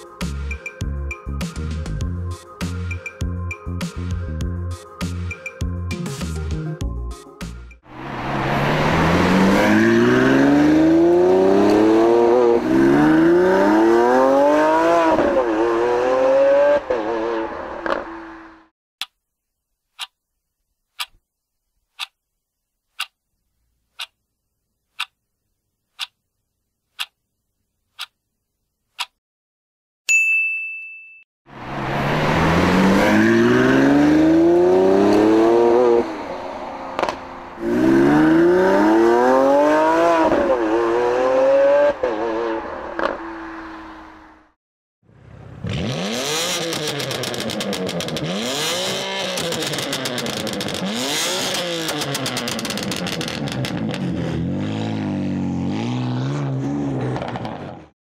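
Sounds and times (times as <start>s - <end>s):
sports car engine accelerating: 7.9s - 18.7s, 31.6s - 44.4s, 45.1s - 57.9s
countdown clock ticking: 20.0s - 20.2s, 21.0s - 21.2s, 22.0s - 22.2s, 23.0s - 23.2s, 25.0s - 25.2s, 26.0s - 26.2s, 27.0s - 27.2s, 29.0s - 29.2s
ding: 30.1s - 31.3s.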